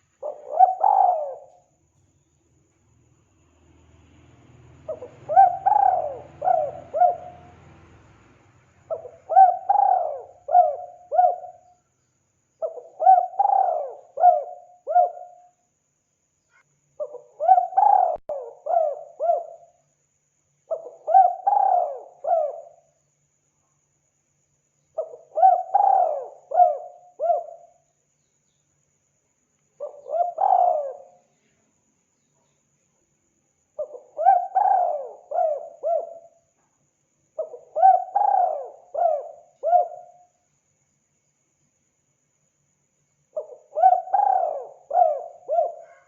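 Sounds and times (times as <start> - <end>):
dove cooing: 0.0 - 1.7, 4.9 - 7.7, 8.9 - 11.7, 12.6 - 15.5, 17.0 - 19.7, 20.7 - 22.9, 25.0 - 27.7, 29.8 - 31.2, 33.8 - 36.4, 37.4 - 40.3, 43.4 - 46.0.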